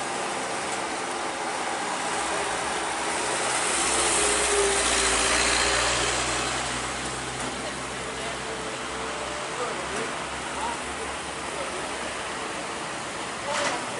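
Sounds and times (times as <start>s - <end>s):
heavy truck passing: 1.6s - 10.6s.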